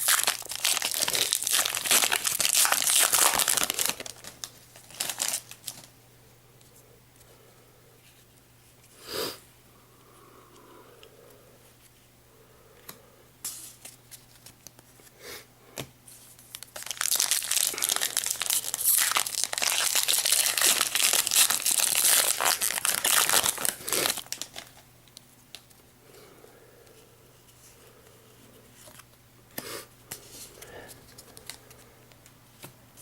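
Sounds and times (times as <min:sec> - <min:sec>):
foil wrapper tearing and crinkling: 0:00.0 - 0:05.9, 0:16.5 - 0:24.8.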